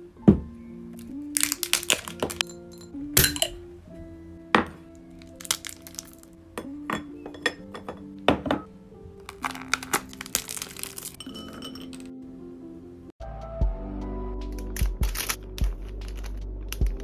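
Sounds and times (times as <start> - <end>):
background music: 0.0 - 17.0
glassware clicking and clinking: 1.4 - 3.6, 5.4 - 8.7, 9.5 - 12.1.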